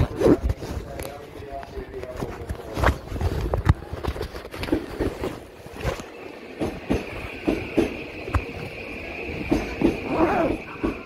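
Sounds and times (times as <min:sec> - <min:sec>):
train high whine: 0:05.0 - 0:11.0
wheels knocking on track: 0:06.5 - 0:11.0.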